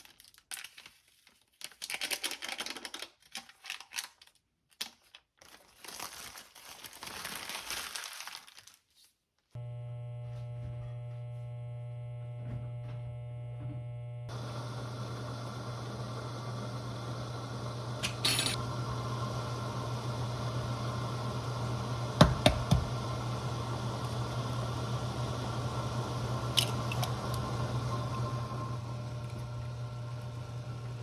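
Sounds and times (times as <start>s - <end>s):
low electrical hum: 9.6s - 31.0s
sharp clicks and knocks: 22.2s - 22.9s.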